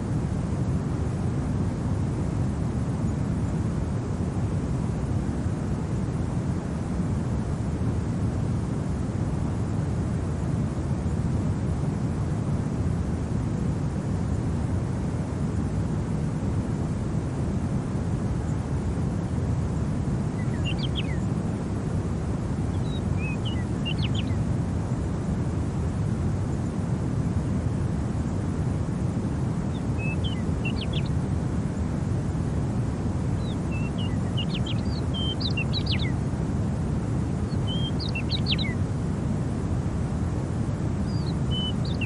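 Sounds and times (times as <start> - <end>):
low rumble of wind: 0.0 - 42.0
small birds chirping: 19.6 - 25.7, 29.6 - 31.9, 32.6 - 36.4, 37.1 - 39.0, 40.9 - 42.0.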